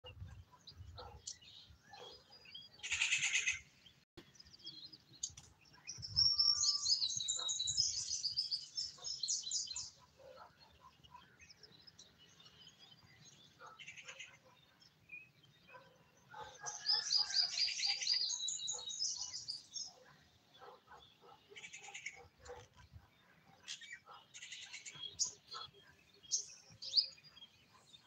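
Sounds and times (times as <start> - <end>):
small birds chirping: 0.0 - 28.0
short harsh bird chatter: 2.8 - 3.7.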